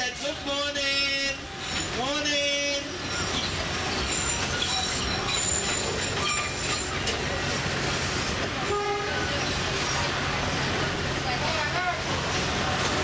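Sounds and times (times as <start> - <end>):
train wheels rumbling on track: 0.0 - 13.0
wheel squeals: 2.9 - 8.2.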